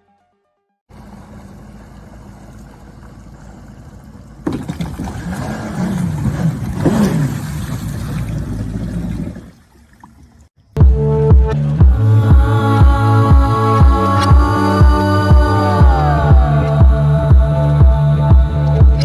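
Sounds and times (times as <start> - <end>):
motorboat engine running: 0.9 - 9.7, 10.8 - 19.0.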